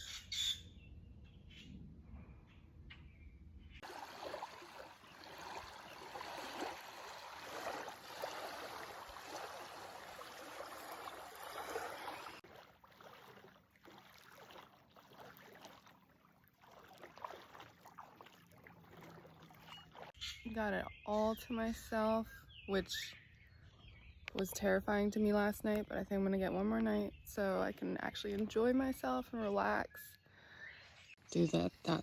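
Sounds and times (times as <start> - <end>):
water lapping at shore: 3.8 - 22.0.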